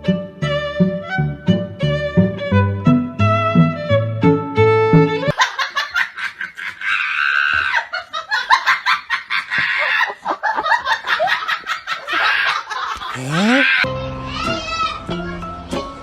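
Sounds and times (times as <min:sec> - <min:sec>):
high-pitched laughter: 0:11.9 - 0:13.8.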